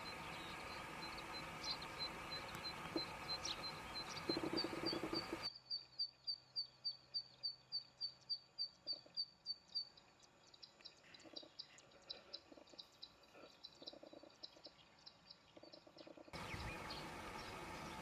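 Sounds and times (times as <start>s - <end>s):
background hiss: 0.0s - 5.5s, 16.4s - 18.0s
small birds chirping: 0.0s - 18.0s.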